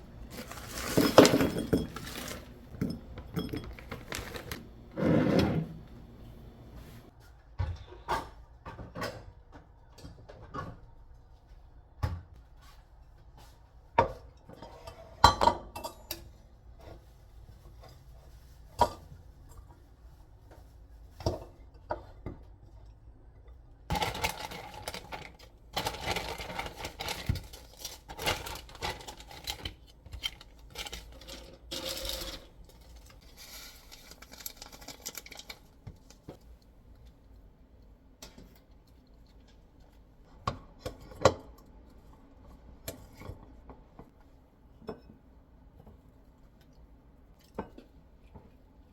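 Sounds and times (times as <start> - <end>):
dishes and cutlery clinking: 0.3 - 4.5.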